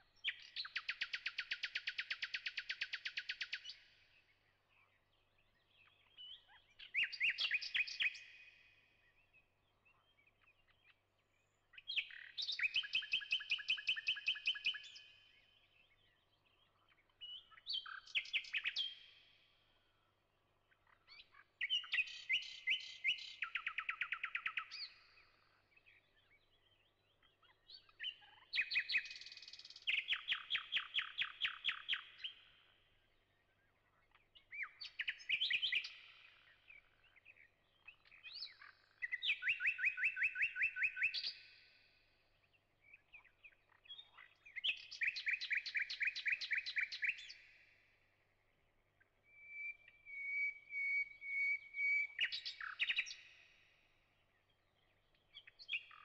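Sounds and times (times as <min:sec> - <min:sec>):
songbird trilling: 0:38.3 - 0:41.4, 0:49.3 - 0:53.3.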